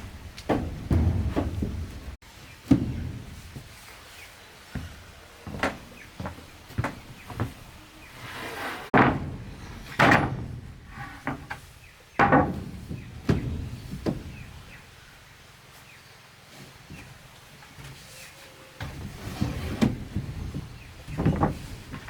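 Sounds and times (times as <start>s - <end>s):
wooden planks knocking together: 0.0s - 3.7s, 8.9s - 14.8s, 18.8s - 22.0s.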